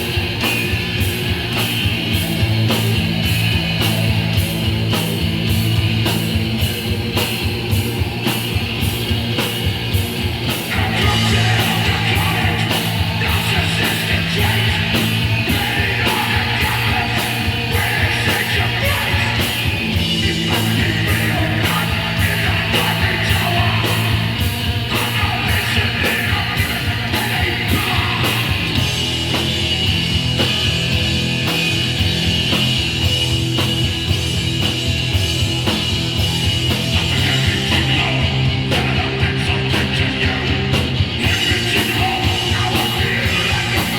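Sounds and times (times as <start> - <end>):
bass guitar: 0.0 - 43.9
distorted electric guitar: 0.0 - 43.9
drums with driving beat: 0.0 - 43.9
shouted vocals: 10.7 - 28.7, 37.0 - 43.9.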